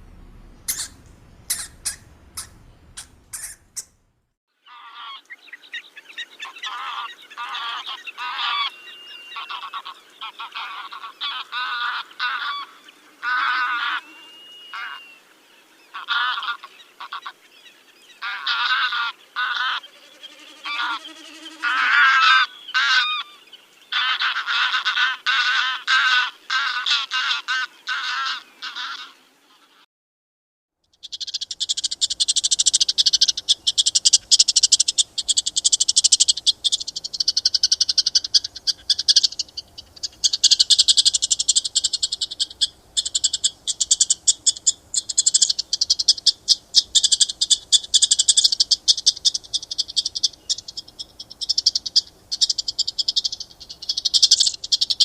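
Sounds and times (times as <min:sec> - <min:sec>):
geese honking: 0:00.0 - 0:04.0, 0:06.4 - 0:08.7, 0:09.3 - 0:15.1, 0:16.0 - 0:17.4, 0:18.2 - 0:23.3, 0:23.9 - 0:29.8, 0:31.8 - 0:50.9.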